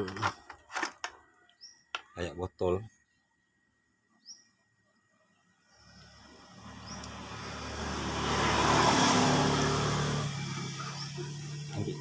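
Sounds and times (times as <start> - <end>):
vehicle passing by on road: 5.7 - 12.0.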